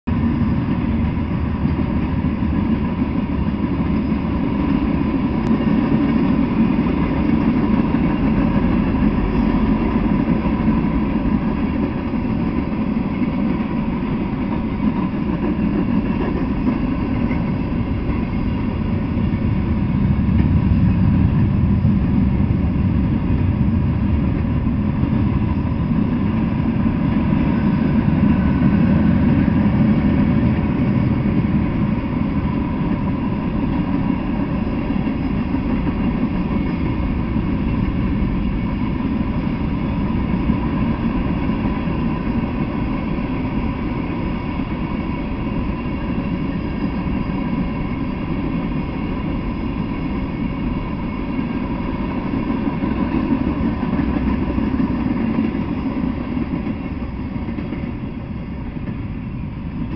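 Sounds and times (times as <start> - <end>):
freight cars rumbling on rails: 0.0 - 59.9.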